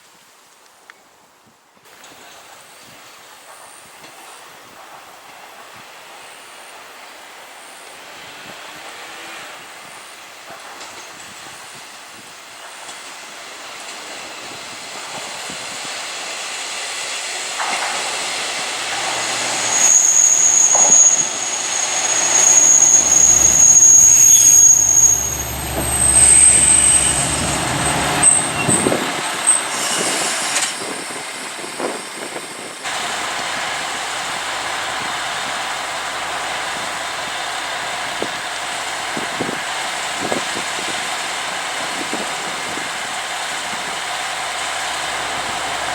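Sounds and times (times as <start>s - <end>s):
diesel railcar engine rumble: 8.1s - 45.9s
metallic wheel and brake squealing: 18.9s - 32.7s.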